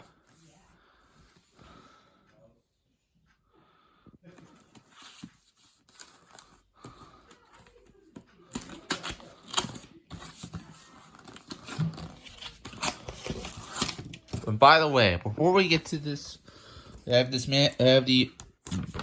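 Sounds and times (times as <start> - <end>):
cardboard box tearing and crinkling: 11.2 - 14.3.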